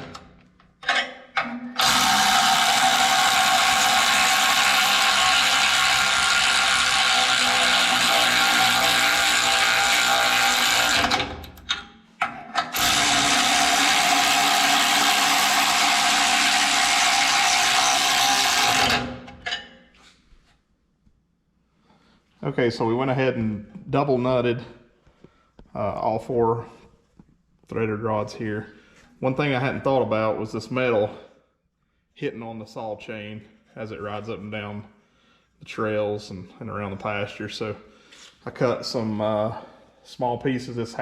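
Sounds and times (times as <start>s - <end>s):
power tool whining: 1.8s - 11.7s, 12.6s - 19.5s.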